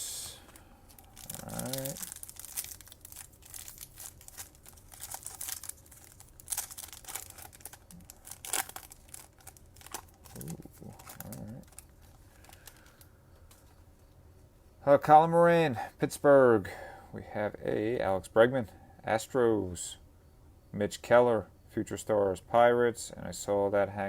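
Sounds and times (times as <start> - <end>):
cards being handled: 0.4 - 13.7
foil wrapper crinkling and tearing: 0.9 - 13.1.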